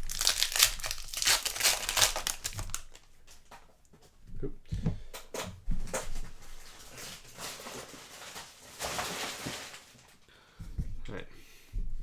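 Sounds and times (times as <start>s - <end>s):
cards rustling: 0.0s - 3.1s.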